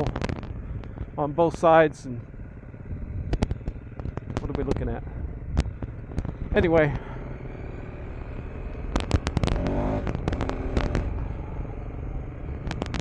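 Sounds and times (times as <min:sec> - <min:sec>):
sharp cracks and clicks: 0:00.0 - 0:01.0, 0:03.2 - 0:04.9, 0:08.6 - 0:11.2, 0:12.5 - 0:13.0
motorcycle engine running: 0:00.0 - 0:13.0.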